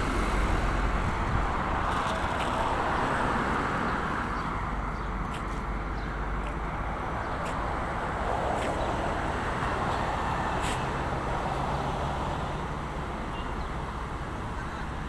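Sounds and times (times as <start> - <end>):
vehicle rushing hum: 0.0 - 3.5.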